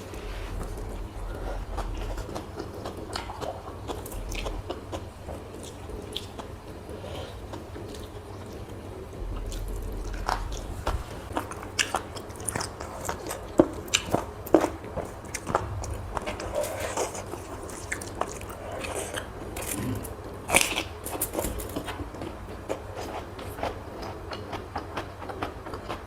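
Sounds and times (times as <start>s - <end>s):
low hum: 0.0s - 20.4s
person chewing food: 0.0s - 26.0s.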